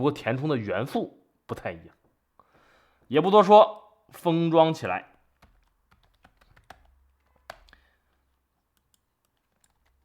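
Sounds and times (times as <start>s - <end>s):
keyboard clicks: 5.4s - 10.0s.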